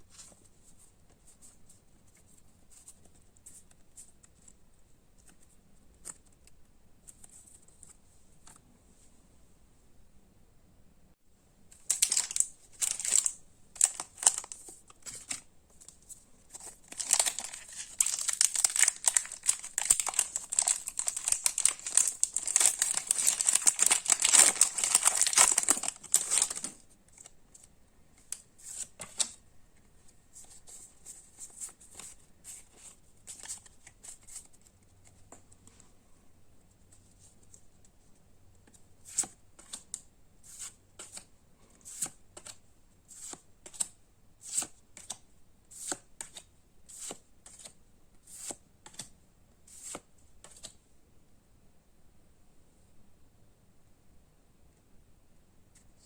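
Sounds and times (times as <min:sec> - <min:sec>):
foil wrapper crinkling: 0:11.9 - 0:14.6, 0:16.6 - 0:26.8.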